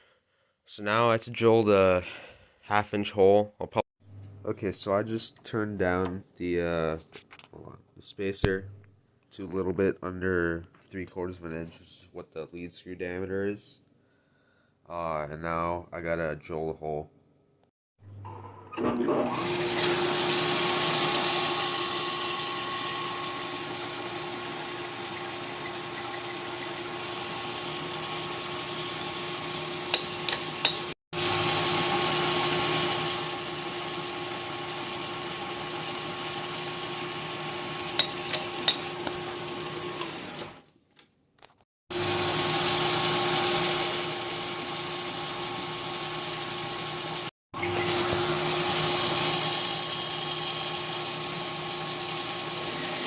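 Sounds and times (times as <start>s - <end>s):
metal lathe humming: 19.5s - 40.6s, 41.9s - 53.0s
drill drilling into aluminium: 41.9s - 53.0s.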